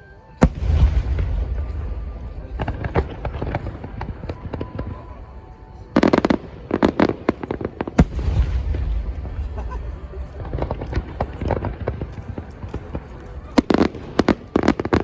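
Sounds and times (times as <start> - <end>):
firework boom: 0.4 - 4.2
firework crackling: 0.4 - 15.0.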